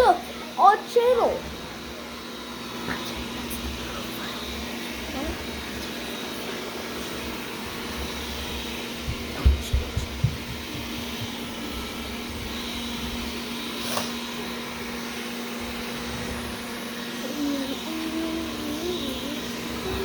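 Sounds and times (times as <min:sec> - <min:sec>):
robot vacuum motor whirring: 0:05.0 - 0:20.0.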